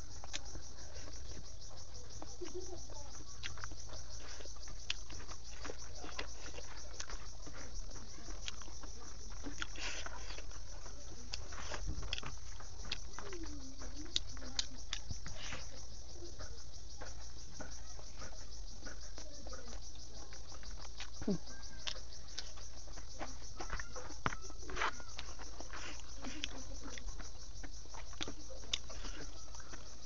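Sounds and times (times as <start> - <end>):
insects chirping: 0.0 - 30.0
person chewing food: 0.0 - 30.0.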